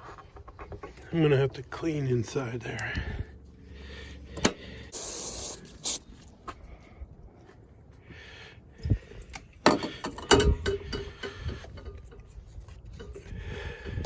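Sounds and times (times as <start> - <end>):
tools and parts rustling: 0.0 - 1.2, 9.2 - 14.0.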